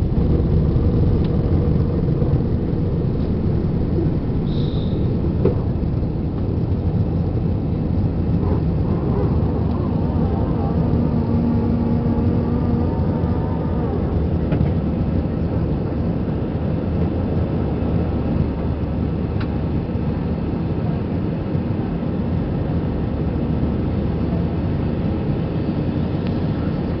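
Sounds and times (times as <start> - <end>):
low hum: 0.0 - 16.5
jet engines and airflow in cabin: 0.0 - 27.0.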